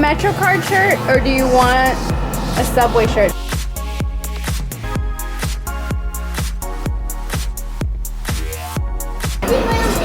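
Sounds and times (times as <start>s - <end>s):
held synth notes: 0.0s - 3.4s, 9.4s - 10.0s.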